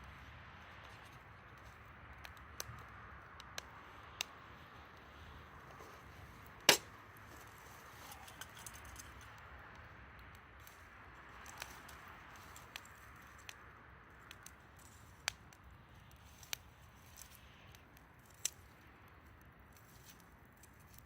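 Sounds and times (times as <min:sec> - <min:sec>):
campfire crackling and popping: 0:00.0 - 0:21.0
loud snap of fire: 0:01.6 - 0:08.4.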